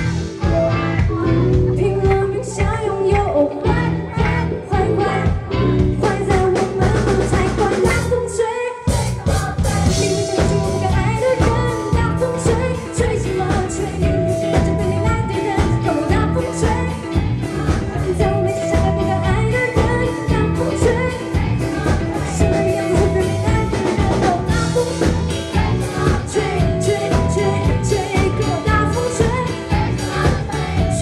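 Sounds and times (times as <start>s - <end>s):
live band playing pop-rock: 0.0s - 31.0s.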